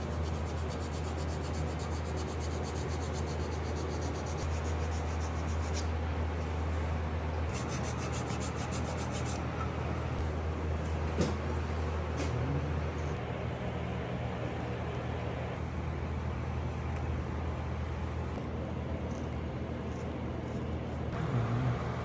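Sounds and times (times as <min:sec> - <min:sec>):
carving tool scratching wood: 0:00.0 - 0:05.9, 0:07.5 - 0:09.4
steady low hum: 0:00.0 - 0:22.0.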